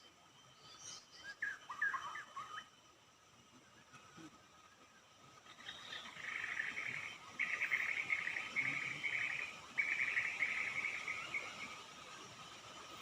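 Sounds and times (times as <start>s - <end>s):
bird buzzy chattering call: 5.6s - 11.8s.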